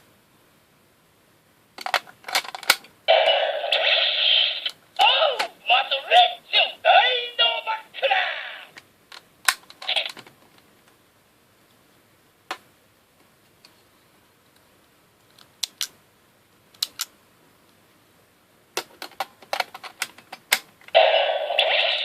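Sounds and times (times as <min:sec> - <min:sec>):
plastic toy clicks: 0:16.8 - 0:17.1.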